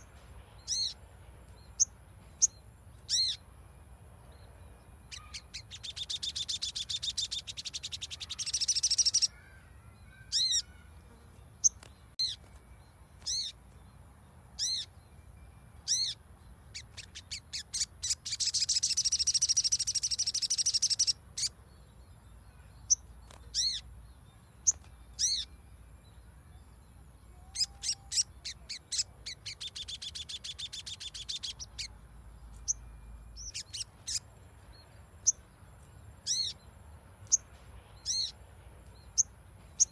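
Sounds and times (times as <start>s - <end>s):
bird rapid chattering trills: 5.1s - 9.3s, 15.9s - 21.5s, 27.5s - 31.9s, 33.4s - 34.2s.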